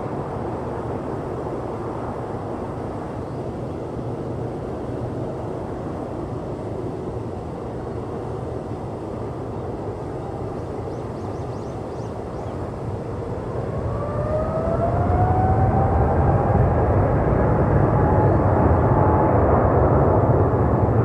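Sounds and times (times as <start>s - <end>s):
jet engines rumbling and whining: 0.0s - 21.0s.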